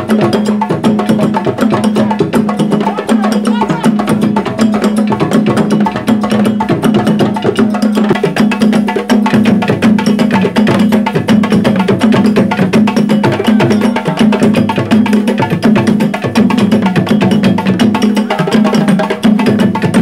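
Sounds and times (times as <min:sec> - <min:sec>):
hand drums and sticks drumming: 0:00.0 - 0:20.0.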